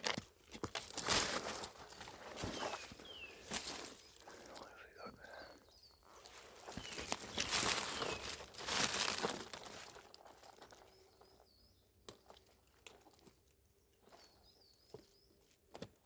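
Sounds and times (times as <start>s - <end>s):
footsteps through dry leaves: 0.6s - 4.7s, 6.1s - 10.9s.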